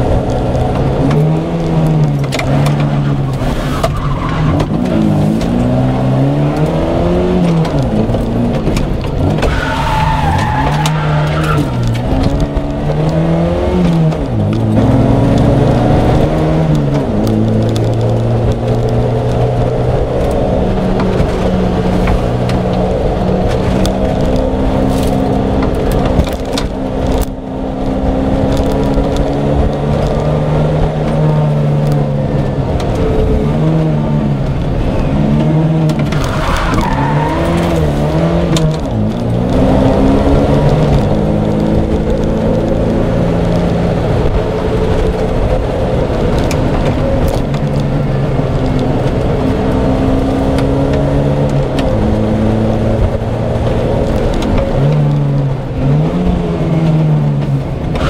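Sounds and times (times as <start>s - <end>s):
car engine revving: 0.0s - 58.0s
tyre squeal: 9.3s - 11.9s.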